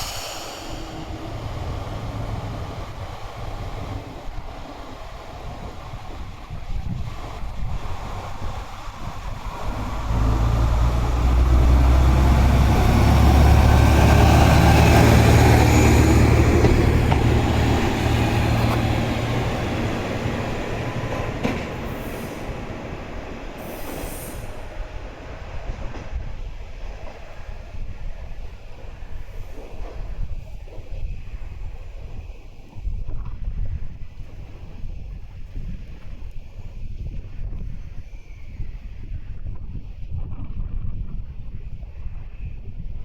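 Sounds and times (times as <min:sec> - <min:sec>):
diesel railcar engine pulling out: 0:00.0 - 0:30.3.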